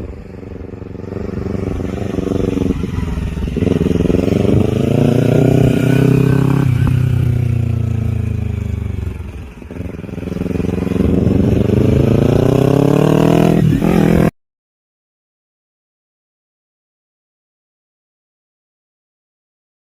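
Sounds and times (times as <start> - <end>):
motorcycle engine revving: 0.0 - 14.3.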